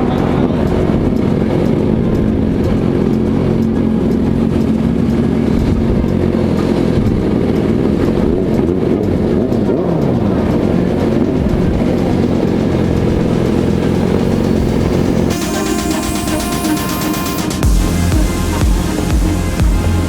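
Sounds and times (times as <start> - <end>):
vehicle engines revving: 0.0 - 20.0.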